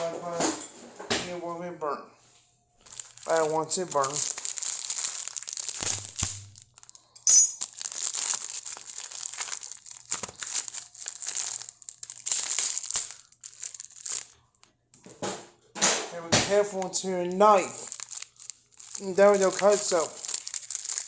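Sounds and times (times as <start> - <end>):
plastic wrapping crinkling and tearing: 2.8 - 15.1, 16.6 - 21.0.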